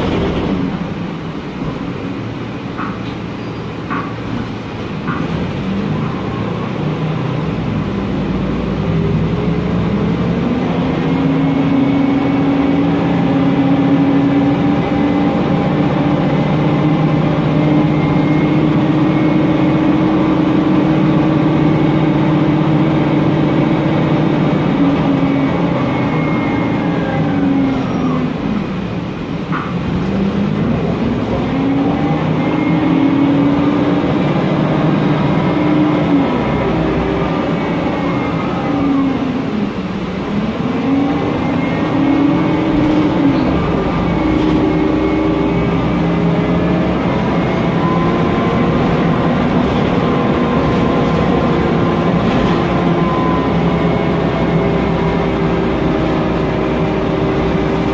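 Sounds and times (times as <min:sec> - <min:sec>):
bus engine: 0:00.0 - 0:57.9
bus gearbox whine: 0:41.2 - 0:57.9.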